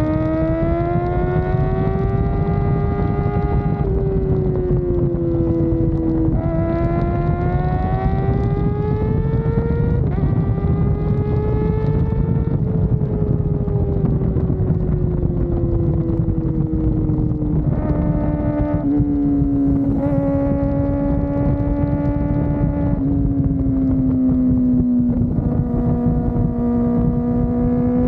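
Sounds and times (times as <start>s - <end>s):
motorcycle engine accelerating: 0.0s - 28.0s
wind rumble on microphone: 0.0s - 28.0s.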